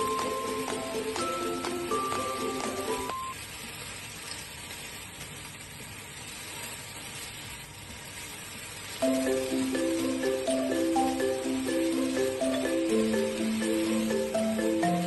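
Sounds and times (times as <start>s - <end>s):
mallet instrument music: 0.0s - 3.3s, 9.0s - 15.0s
vegetables sizzling in a pan: 0.0s - 15.0s.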